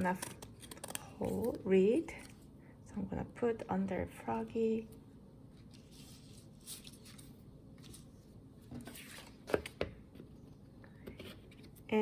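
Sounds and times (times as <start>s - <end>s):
paper rustling: 5.6s - 9.8s.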